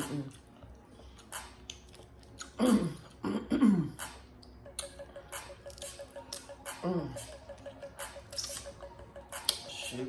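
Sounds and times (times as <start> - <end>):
woman coughing: 2.6 - 4.0.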